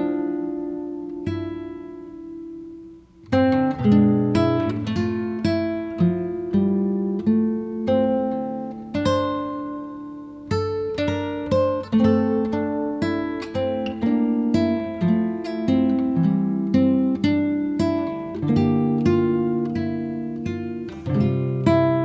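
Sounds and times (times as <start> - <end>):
acoustic guitar playing: 0.0 - 22.0.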